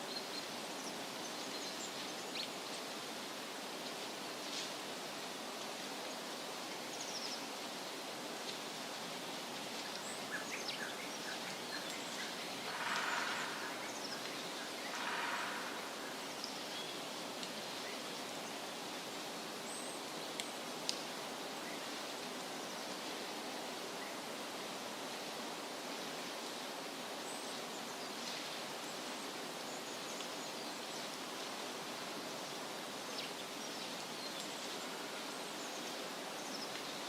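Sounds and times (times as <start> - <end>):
wind rustling leaves: 0.0 - 37.0.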